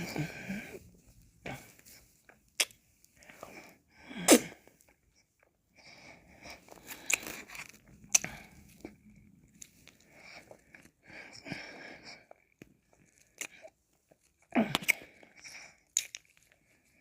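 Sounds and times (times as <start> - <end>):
licking and lip smacks: 2.6 - 2.8, 7.0 - 8.4.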